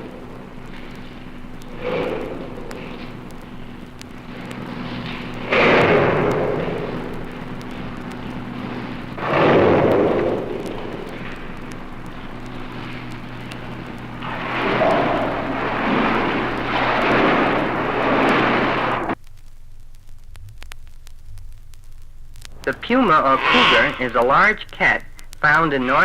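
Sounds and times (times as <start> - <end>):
hippopotamus snorting: 0.0 - 19.2
steady low hum: 0.0 - 26.0.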